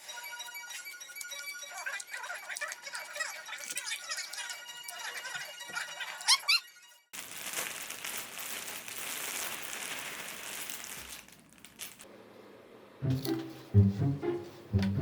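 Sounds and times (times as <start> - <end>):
crinkling rustling: 7.2 - 12.1
music with plucked bass: 13.0 - 15.0.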